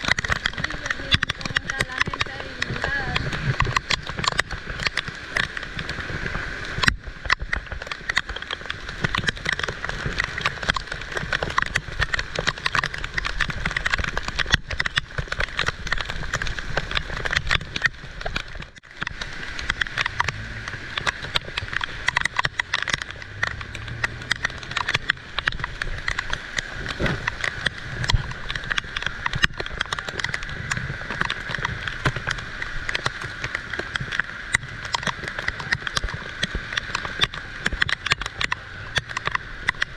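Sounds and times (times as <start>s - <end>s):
heavy rain patter: 0.0s - 39.9s
low rumble: 14.9s - 35.0s.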